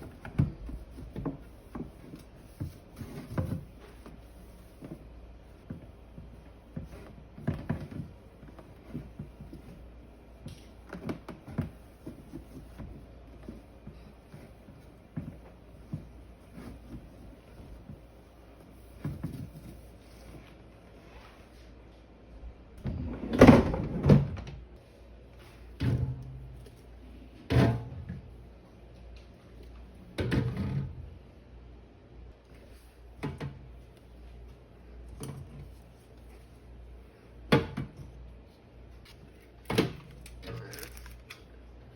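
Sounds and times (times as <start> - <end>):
refrigerator drawers clunking: 25.8 - 26.6, 30.1 - 31.1.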